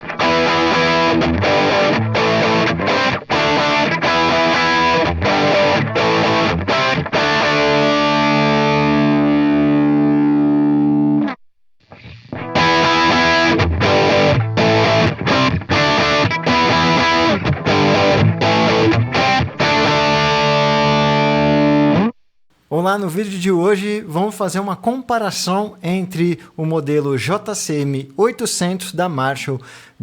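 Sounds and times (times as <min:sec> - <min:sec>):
distorted electric guitar riff: 0:00.0 - 0:22.2.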